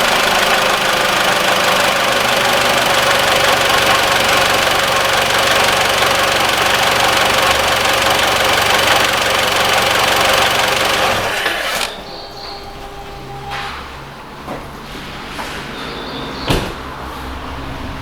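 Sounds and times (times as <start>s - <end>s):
car engine idling: 0.0s - 13.3s.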